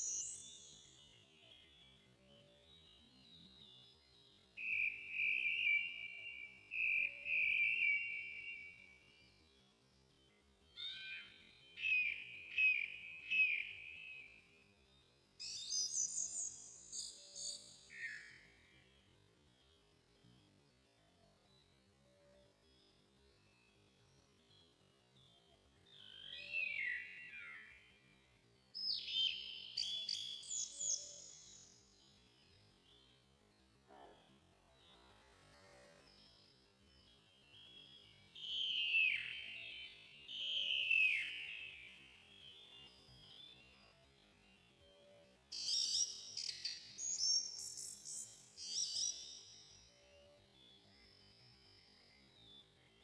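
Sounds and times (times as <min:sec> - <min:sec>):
slowed-down birdsong: 0:00.0 - 0:53.0.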